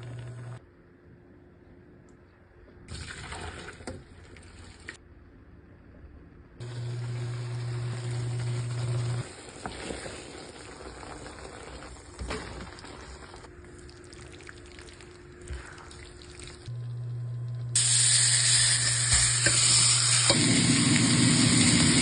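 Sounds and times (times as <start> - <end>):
running water in a kitchen: 0.0 - 0.6, 2.9 - 5.0, 6.6 - 22.0
low hum: 13.5 - 21.9.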